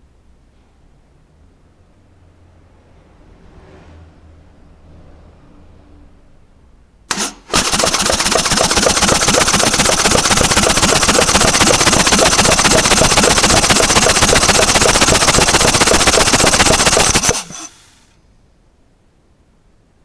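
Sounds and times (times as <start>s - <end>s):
motorcycle engine running: 7.1s - 17.9s
abnormal mechanical engine noise: 7.1s - 18.0s.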